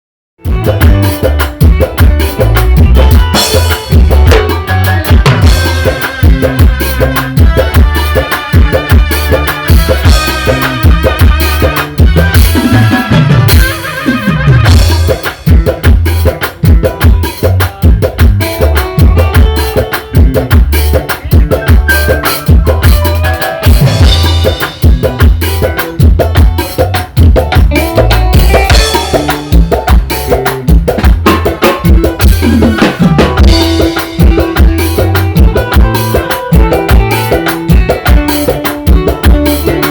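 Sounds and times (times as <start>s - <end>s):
drum kit beat: 0.4s - 39.9s
upbeat band music: 0.4s - 39.9s.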